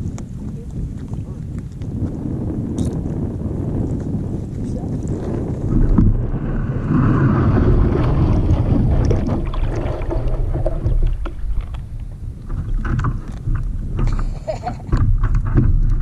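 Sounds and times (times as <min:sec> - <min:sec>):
wind buffeting microphone: 0:00.0 - 0:16.0
water sloshing around hull: 0:04.4 - 0:16.0.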